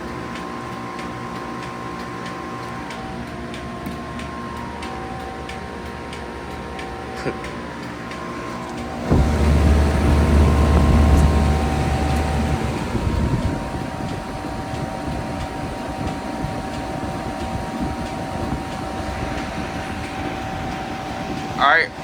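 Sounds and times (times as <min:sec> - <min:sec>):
faint steady whine: 0:00.0 - 0:22.0
heat pump fan and drone: 0:00.0 - 0:22.0
deep hum: 0:08.8 - 0:22.0.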